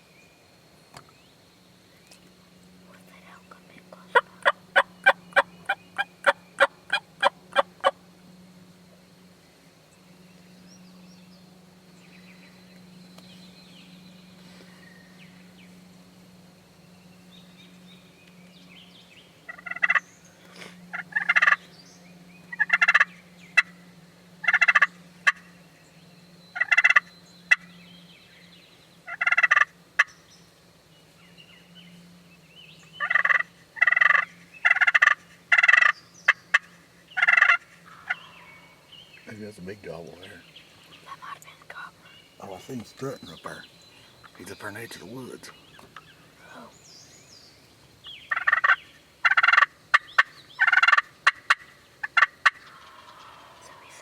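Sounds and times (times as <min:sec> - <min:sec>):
turkeys gobbling: 0:04.1 - 0:08.0, 0:19.5 - 0:20.0, 0:20.9 - 0:21.6, 0:22.6 - 0:23.7, 0:24.4 - 0:25.4, 0:26.6 - 0:27.6, 0:29.1 - 0:30.1, 0:33.0 - 0:38.7, 0:48.3 - 0:53.7.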